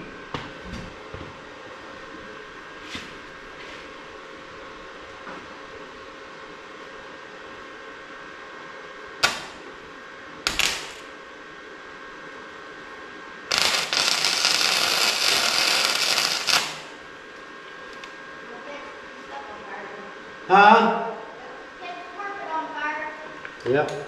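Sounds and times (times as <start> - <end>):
welder crackling: 9.2 - 9.9, 10.5 - 11.1, 13.5 - 18.2.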